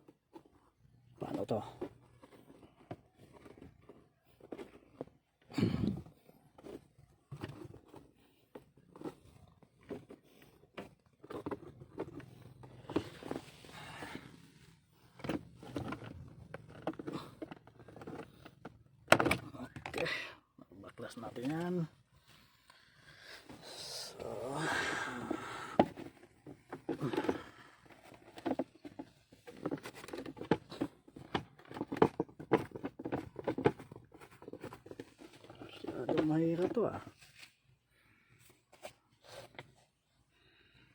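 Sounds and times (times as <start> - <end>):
hand tools clicking and knocking: 25.8 - 36.8.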